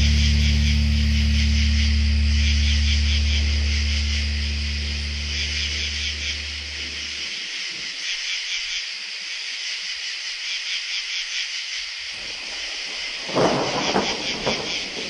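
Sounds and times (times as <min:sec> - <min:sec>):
held low musical note: 0:00.0 - 0:07.3
steady high-pitched hiss: 0:00.0 - 0:15.0.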